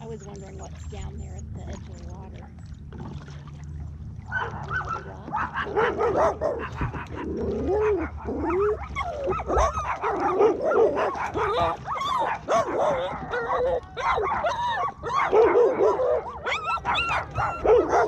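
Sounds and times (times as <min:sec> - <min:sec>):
dog yipping: 0:07.8 - 0:18.0
dog whining: 0:10.7 - 0:18.0.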